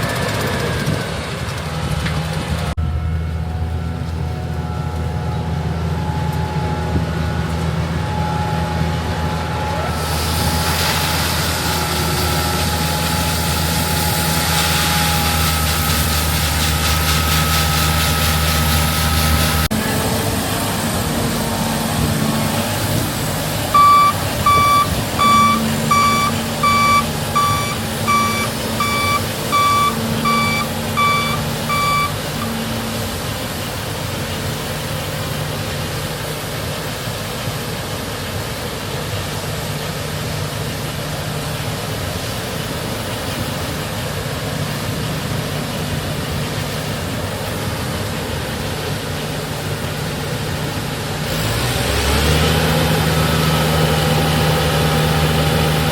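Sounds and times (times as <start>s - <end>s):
diesel engine running: 0.0s - 55.9s
reversing alarm beeps: 23.8s - 32.8s.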